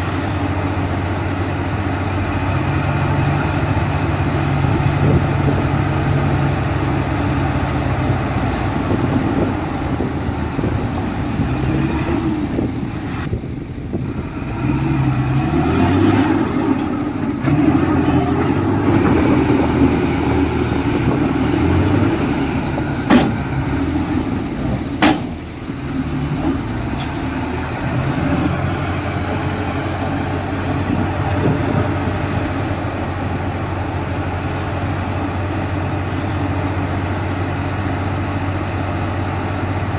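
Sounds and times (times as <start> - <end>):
diesel machinery running: 0.0 - 39.9
sharp knocks: 23.1 - 23.5, 25.0 - 25.4.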